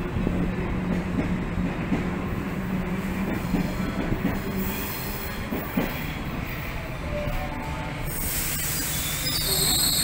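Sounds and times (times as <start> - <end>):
electric train hum: 0.0 - 10.0
high squeal: 8.1 - 10.0.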